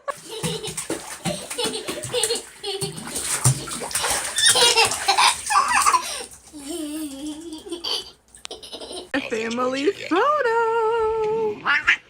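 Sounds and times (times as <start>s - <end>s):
people laughing: 0.0s - 3.2s, 4.2s - 9.1s.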